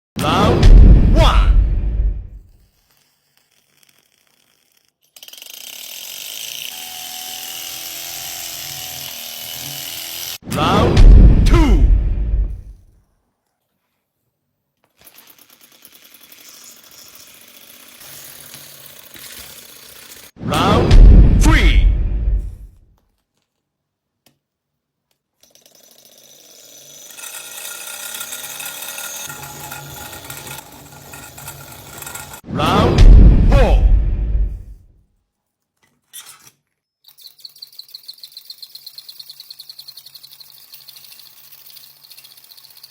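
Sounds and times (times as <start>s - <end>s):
model engine whirring and clattering: 2.5s - 10.4s, 14.8s - 20.4s, 25.4s - 32.4s, 36.0s - 42.9s.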